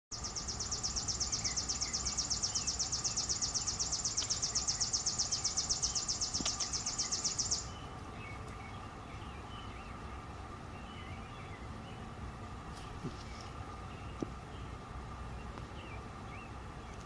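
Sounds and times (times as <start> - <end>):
insect pulsed trill: 0.2 - 7.8
faint bird chirps: 0.2 - 10.0
distant insects humming: 0.2 - 17.0.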